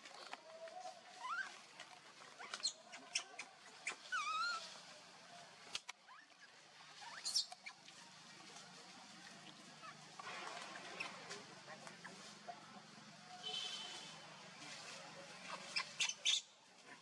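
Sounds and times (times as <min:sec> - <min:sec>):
monkeys squeaking and squealing: 0:01.1 - 0:04.8, 0:06.0 - 0:07.9, 0:15.4 - 0:16.5.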